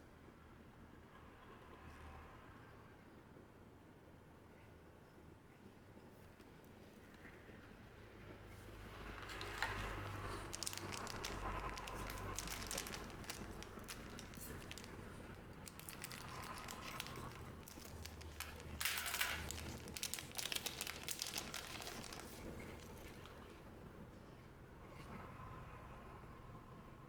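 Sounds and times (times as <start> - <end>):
wrapper crinkling and tearing: 8.8 - 23.4.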